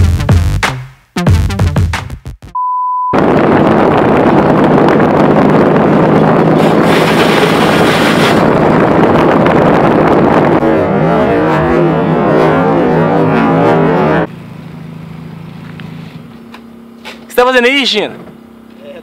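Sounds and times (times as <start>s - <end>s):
high steady beep: 2.6s - 3.2s
low hum: 3.0s - 17.0s
loud steady rushing noise: 3.2s - 14.3s.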